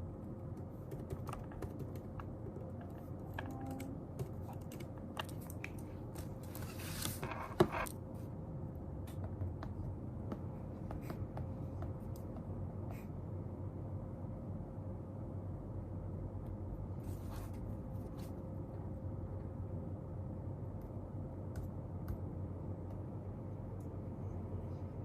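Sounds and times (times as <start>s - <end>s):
low room hum: 0.0s - 25.0s
paper rustle: 6.1s - 7.9s.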